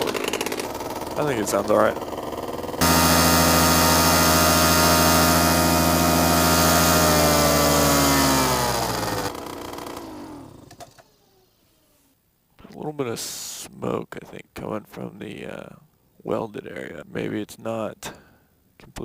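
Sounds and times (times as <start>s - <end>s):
paramotor engine running: 0.0s - 11.2s.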